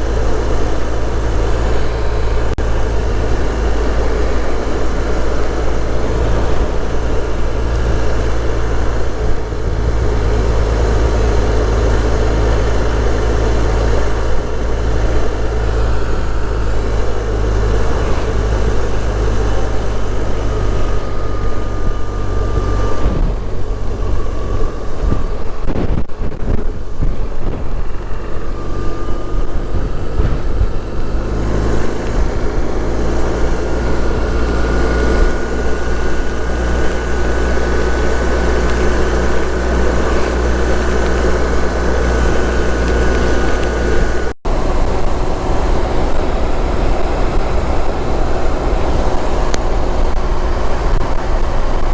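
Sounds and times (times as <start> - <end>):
motorcycle engine running: 0.0 - 51.9
wind rushing over helmet: 20.0 - 51.9.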